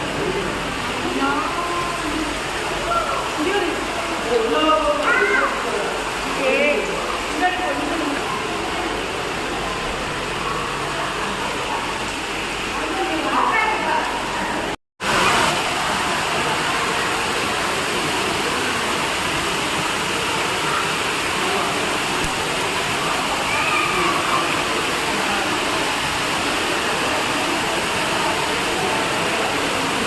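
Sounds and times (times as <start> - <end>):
faint voices murmuring: 0.0 - 14.8.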